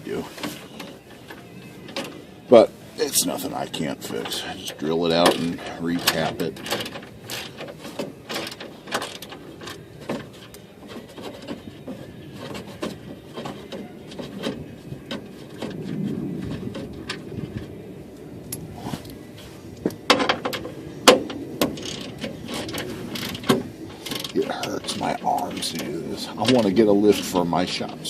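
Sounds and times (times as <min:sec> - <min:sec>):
hand tools clicking and rattling: 0:04.1 - 0:17.7, 0:19.8 - 0:28.0.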